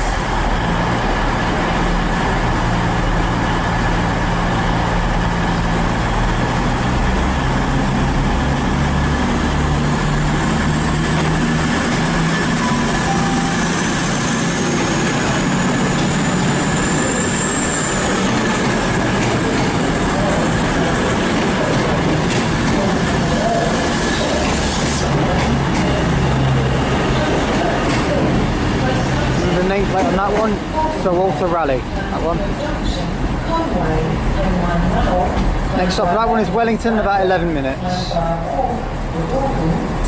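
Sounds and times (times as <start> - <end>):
train diesel engines under load: 0.0 - 40.0
high wheel squeal: 11.3 - 19.1.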